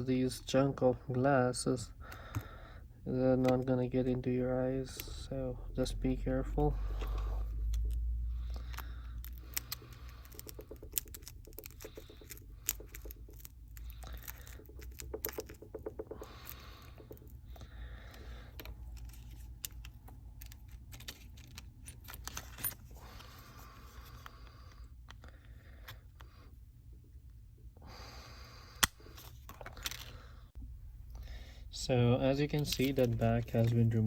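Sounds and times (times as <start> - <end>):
pry tool clicking and scraping: 6.9 - 17.4.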